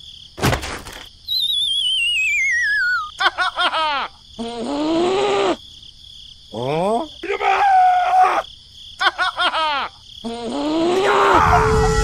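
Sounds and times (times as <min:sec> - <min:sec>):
wobbling whistle sliding down: 0:01.3 - 0:03.1.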